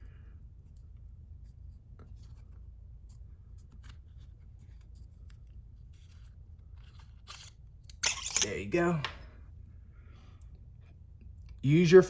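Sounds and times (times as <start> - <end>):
steady low hum: 0.0 - 12.0
tool clicks and rubbing: 6.9 - 8.6.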